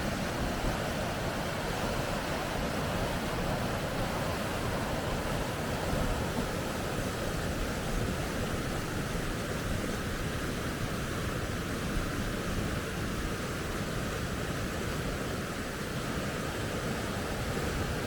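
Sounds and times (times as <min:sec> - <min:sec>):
water rushing over rocks: 0:00.0 - 0:18.0.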